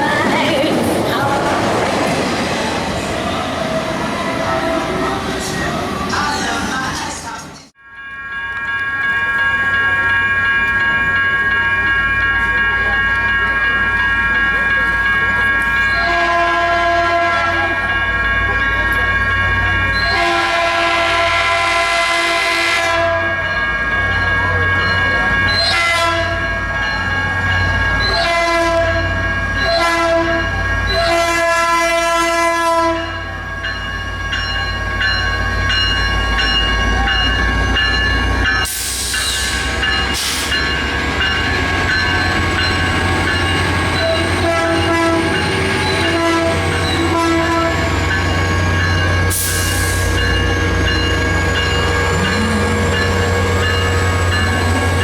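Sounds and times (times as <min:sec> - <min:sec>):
locomotive horn: 0:16.0 - 0:17.8, 0:20.0 - 0:23.4, 0:25.6 - 0:26.4, 0:28.1 - 0:33.2, 0:44.0 - 0:45.4, 0:46.0 - 0:47.9
locomotive engine running: 0:34.7 - 0:55.0.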